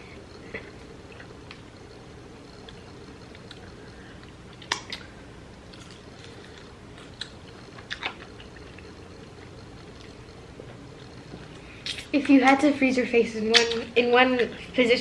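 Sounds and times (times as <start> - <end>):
low background hum: 0.0 - 15.0
clicky bites and chews: 2.6 - 5.1, 5.7 - 10.2.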